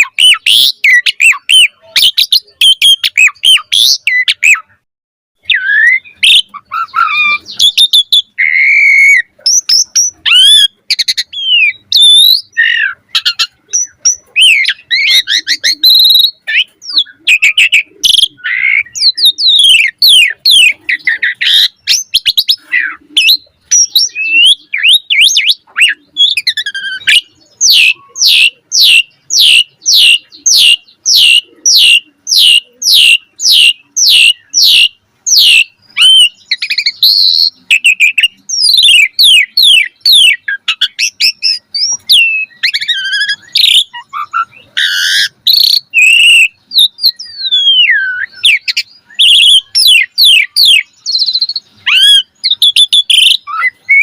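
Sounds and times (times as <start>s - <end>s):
starling singing whistled song: 0.0s - 4.8s, 5.4s - 54.0s.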